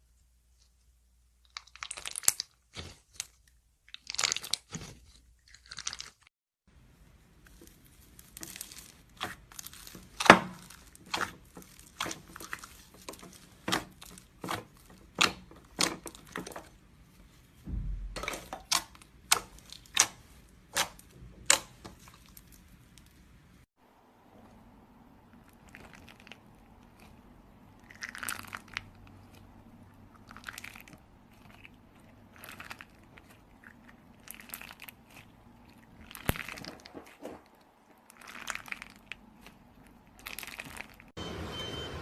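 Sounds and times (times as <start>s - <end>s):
slime crackling and popping: 1.4s - 6.3s, 7.5s - 16.8s, 30.1s - 41.1s.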